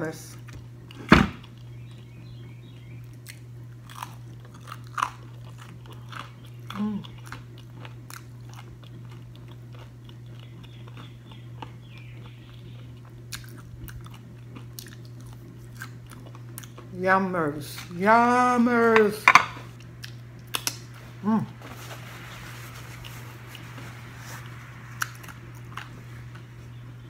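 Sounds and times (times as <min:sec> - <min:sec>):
low hum: 0:00.0 - 0:27.0
person chewing crisp food: 0:03.1 - 0:17.0, 0:19.6 - 0:27.0.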